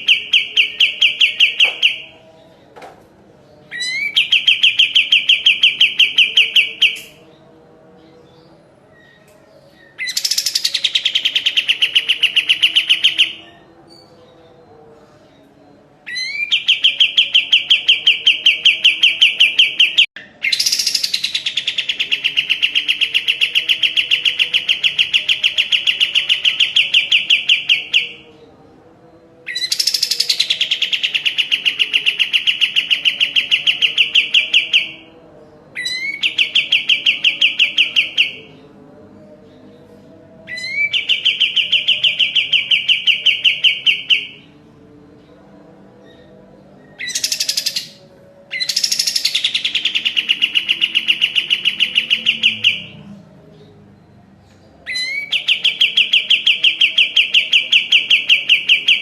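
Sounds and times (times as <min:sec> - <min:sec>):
songbird singing fast trills: 0:09.8 - 0:13.5, 0:46.9 - 0:53.0.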